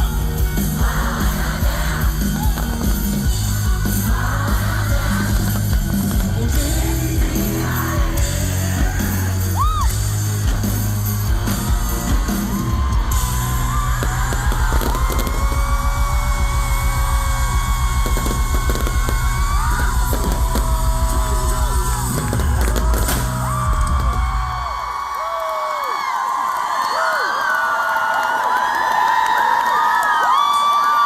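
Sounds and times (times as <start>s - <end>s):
person singing: 0.0s - 12.8s, 13.9s - 23.5s
pop-rock band playing live: 0.0s - 24.5s
crowd yelling: 0.0s - 31.0s.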